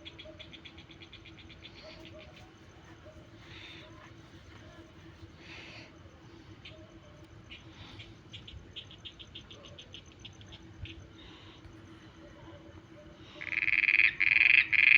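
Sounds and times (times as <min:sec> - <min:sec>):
frogs clicking calls: 0:00.0 - 0:04.2, 0:05.4 - 0:14.9
faint high insect trill: 0:00.0 - 0:14.9
loud frog call close by: 0:13.3 - 0:14.9.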